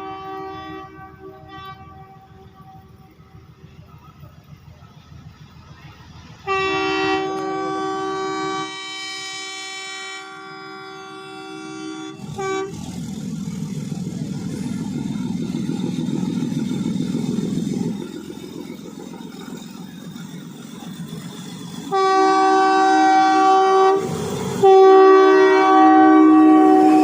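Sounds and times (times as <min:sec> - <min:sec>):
train horn blast: 0:00.0 - 0:03.4, 0:06.4 - 0:13.0, 0:21.9 - 0:27.0
train running rumble: 0:00.0 - 0:27.0.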